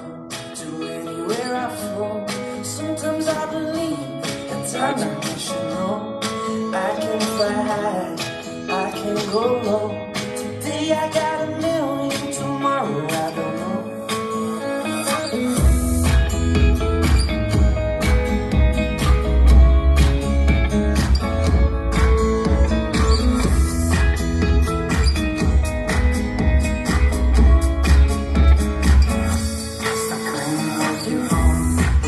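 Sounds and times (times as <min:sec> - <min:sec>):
person singing: 0:00.0 - 0:32.0
plucked guitar: 0:00.0 - 0:32.0
steady beat: 0:15.6 - 0:32.0.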